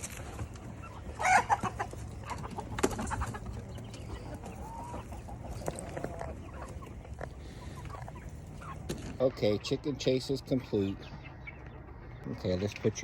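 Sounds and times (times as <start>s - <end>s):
chicken squawking and clucking: 0.1s - 9.6s.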